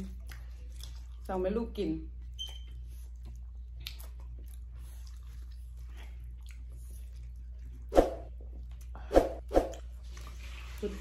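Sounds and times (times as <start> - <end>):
chewing: 0.0 - 9.0, 9.7 - 11.0
wet mouth clicks: 3.8 - 4.2.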